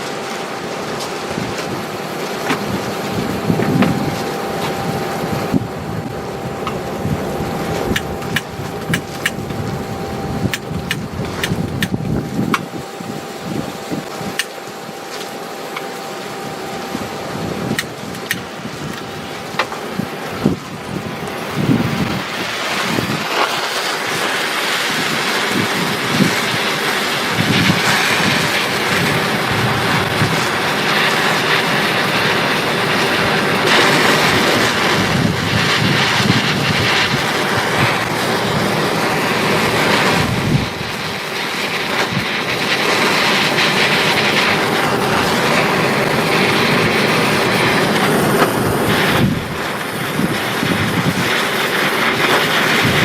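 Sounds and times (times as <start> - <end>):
torch flame blowing: 0.0 - 53.0.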